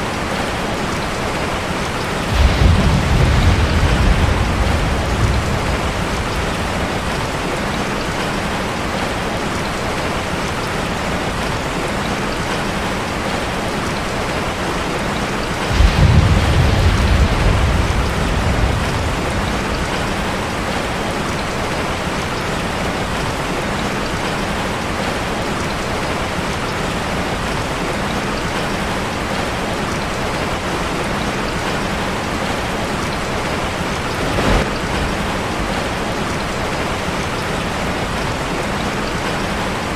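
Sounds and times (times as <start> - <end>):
rain on a metal roof: 0.0 - 39.9
thunder rumble: 1.2 - 9.1, 15.5 - 23.5, 31.5 - 39.4.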